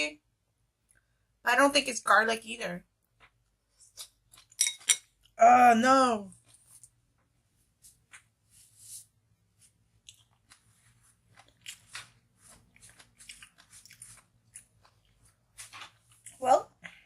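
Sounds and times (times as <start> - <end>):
person chewing food: 3.1 - 5.4, 9.6 - 16.4.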